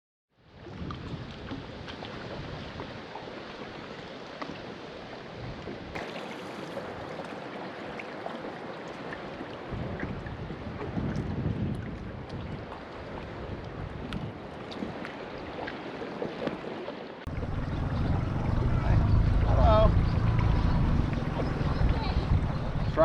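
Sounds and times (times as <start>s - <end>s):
water noise on a lake: 0.3s - 23.0s
wind buffeting microphone: 0.5s - 3.1s, 5.2s - 6.0s, 6.8s - 15.7s, 17.3s - 23.0s
small splashes: 5.9s - 23.0s.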